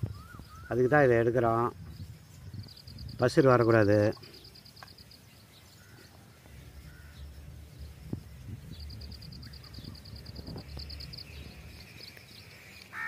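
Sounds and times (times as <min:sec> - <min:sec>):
bird trilling: 0:00.0 - 0:01.1, 0:08.8 - 0:13.0
low outdoor rumble: 0:05.8 - 0:12.6.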